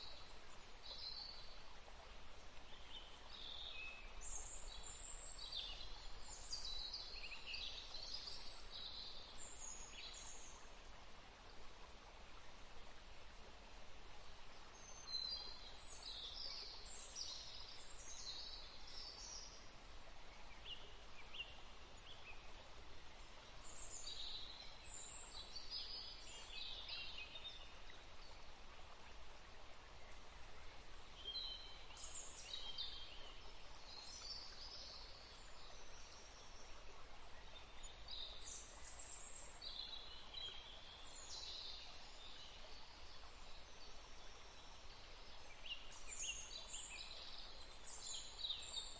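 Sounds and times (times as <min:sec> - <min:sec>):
faint background hiss: 0:00.0 - 0:48.9.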